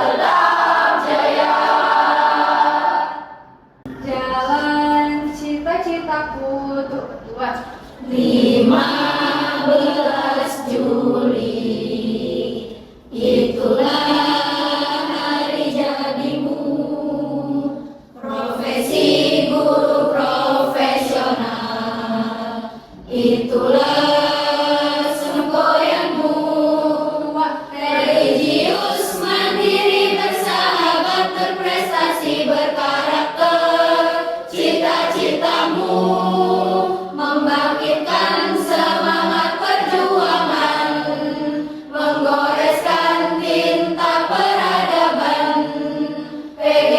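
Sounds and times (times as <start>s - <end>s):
choir singing: 0.0s - 3.9s, 8.0s - 46.9s.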